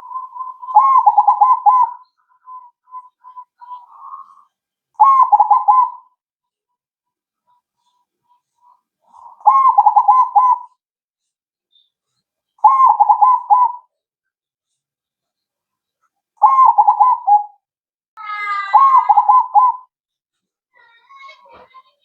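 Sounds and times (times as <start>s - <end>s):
dove cooing: 0.0s - 4.4s, 5.0s - 6.0s, 9.1s - 10.7s, 12.6s - 13.9s, 16.4s - 17.5s, 18.7s - 19.8s.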